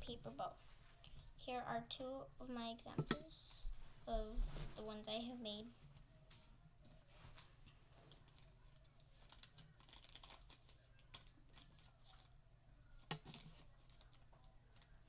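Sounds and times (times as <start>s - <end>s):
paper rustling and crinkling: 6.3s - 12.4s, 13.0s - 15.0s.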